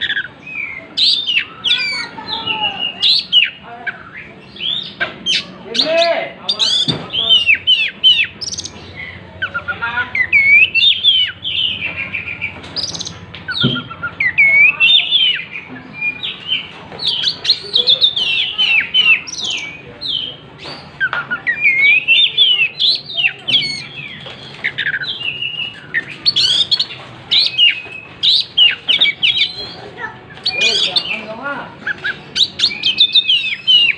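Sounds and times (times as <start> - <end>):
bird singing whistled trills: 6.5 - 29.8, 31.8 - 33.9.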